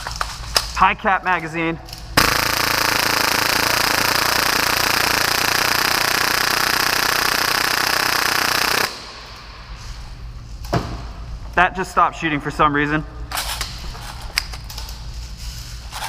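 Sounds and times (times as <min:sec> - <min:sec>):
airsoft pistol rapid fire: 0:02.2 - 0:09.3.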